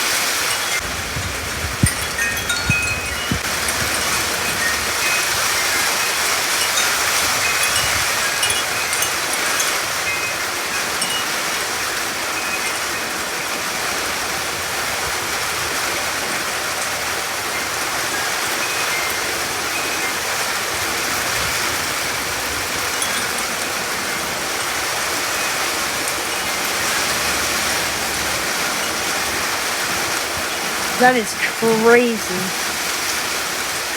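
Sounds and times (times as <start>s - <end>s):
heavy rain pouring: 0.0s - 33.9s.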